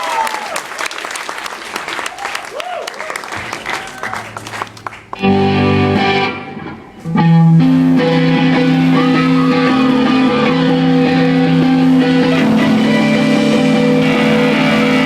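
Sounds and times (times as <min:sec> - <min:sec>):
bending guitar notes: 0:03.4 - 0:15.0
electric guitars playing chords: 0:04.4 - 0:15.0.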